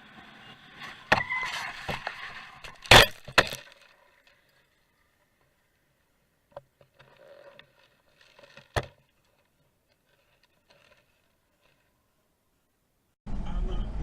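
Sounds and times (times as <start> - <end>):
scraping noises: 0.1 - 4.6.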